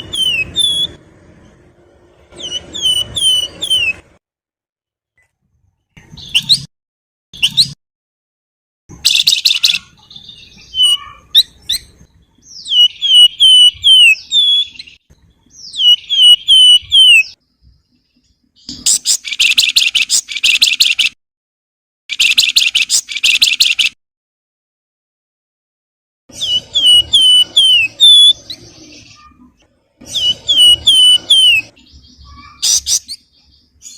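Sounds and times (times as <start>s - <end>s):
bird whistles and chattering trills: 0.0s - 1.0s, 2.4s - 4.0s, 6.0s - 6.7s, 7.4s - 7.8s, 8.9s - 15.0s, 15.6s - 17.4s, 18.6s - 21.2s, 22.1s - 24.0s, 26.3s - 33.9s.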